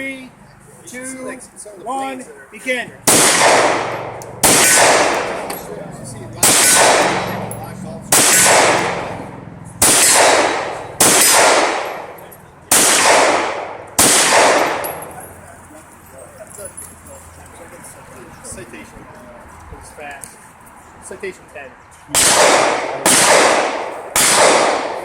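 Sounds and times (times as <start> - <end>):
rifle shots echoing: 3.0 - 5.7, 6.4 - 15.1, 22.1 - 25.0.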